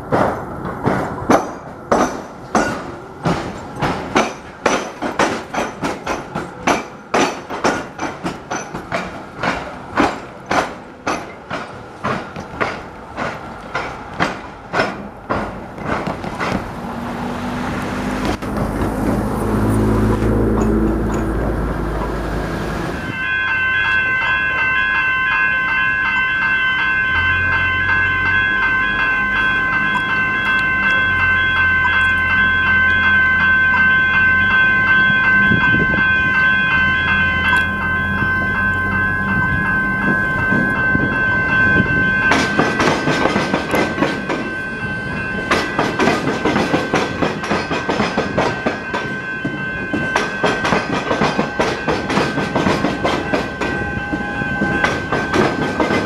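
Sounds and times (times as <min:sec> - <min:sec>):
train wheels clattering: 0:00.0 - 0:17.2, 0:18.2 - 0:22.2, 0:40.0 - 0:56.0
level crossing bells ringing: 0:23.0 - 0:56.0.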